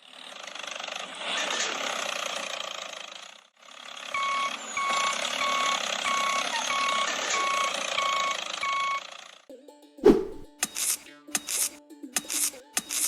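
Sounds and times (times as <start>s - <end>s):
reversing alarm beeping: 4.2s - 9.0s.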